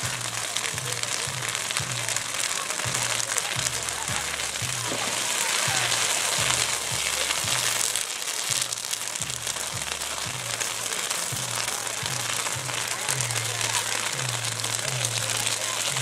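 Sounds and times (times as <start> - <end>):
bonfire crackling: 0.0 - 16.0
music bass line pulsing: 0.0 - 16.0.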